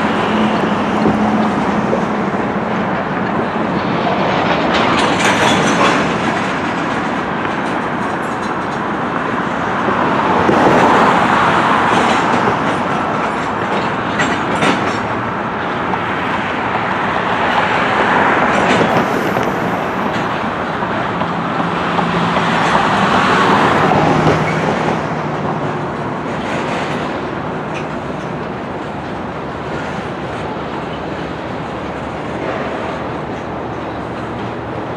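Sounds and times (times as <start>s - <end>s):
freight train wheels rumbling and clicking: 0.0s - 34.9s.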